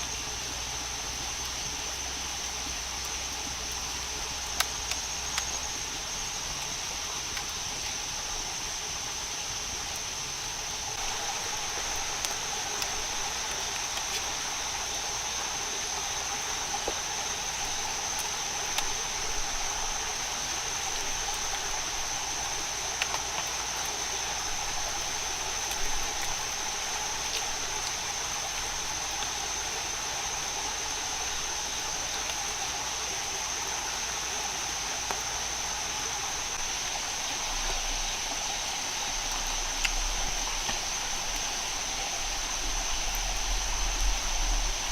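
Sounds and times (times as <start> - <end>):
insect chorus: 0.0 - 44.9
steady hiss: 0.0 - 44.9
faint clicks: 39.3 - 41.5.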